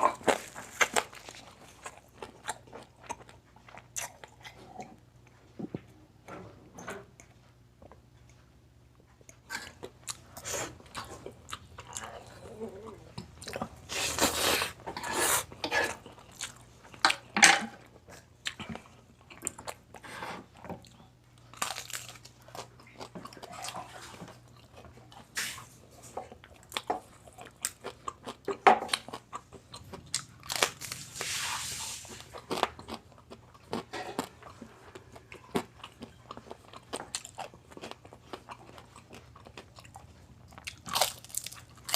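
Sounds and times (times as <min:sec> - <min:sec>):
crispy food crunching: 0:00.0 - 0:05.0, 0:20.6 - 0:41.9.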